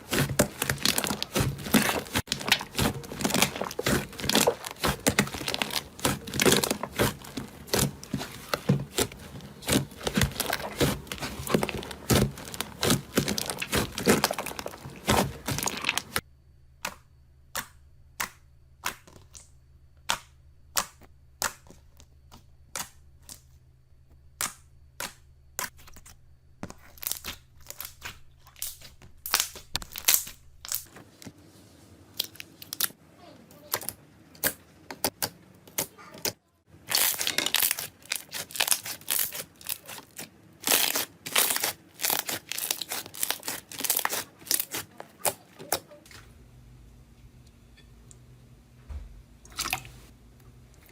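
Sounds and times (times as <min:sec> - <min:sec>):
slime popping and crackling: 0:00.0 - 0:16.2, 0:26.8 - 0:30.9, 0:36.9 - 0:45.8.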